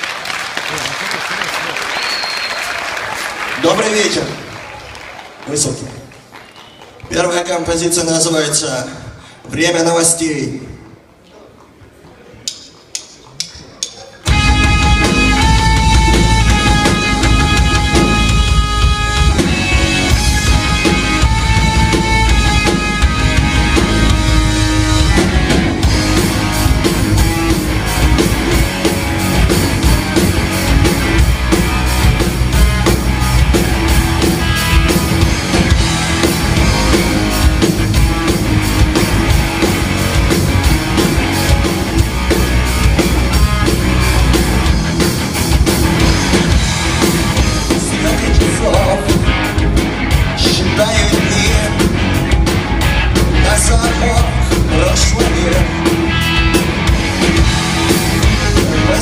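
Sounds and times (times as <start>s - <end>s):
rock band playing live: 14.0s - 59.0s.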